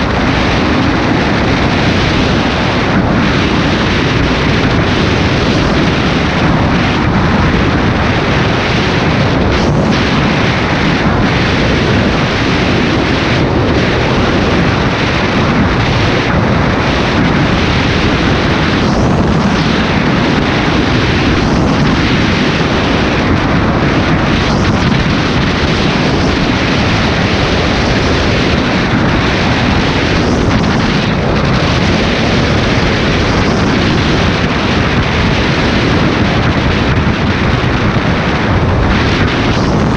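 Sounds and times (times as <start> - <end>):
wind rushing on microphone: 0.0 - 39.9.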